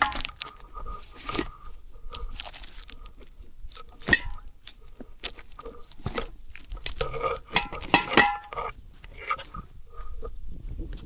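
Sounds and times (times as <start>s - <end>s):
cookware clicks and knocks: 7.6s - 8.7s.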